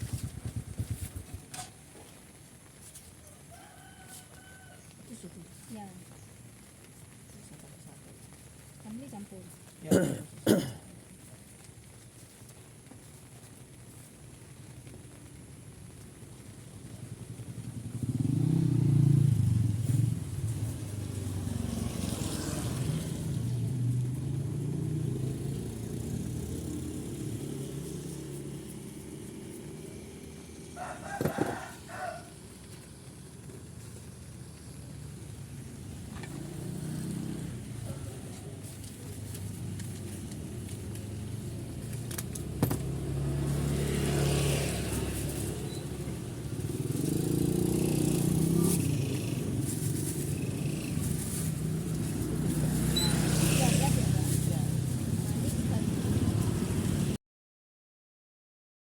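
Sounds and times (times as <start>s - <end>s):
rooster crowing: 3.2s - 4.9s, 30.6s - 32.5s
vehicle engines passing: 16.4s - 57.2s.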